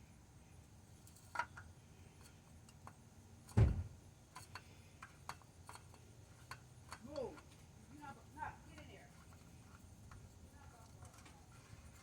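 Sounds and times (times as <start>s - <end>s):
dull thump: 3.6s - 4.0s.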